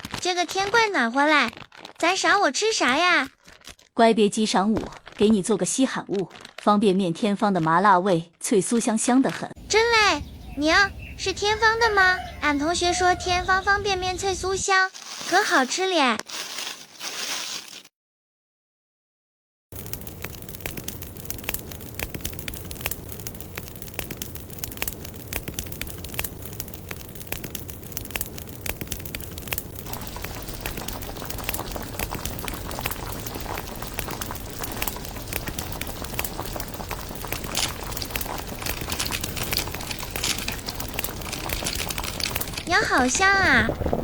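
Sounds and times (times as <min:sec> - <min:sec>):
noodles boiling in a pot: 0:00.0 - 0:08.1, 0:19.7 - 0:44.0.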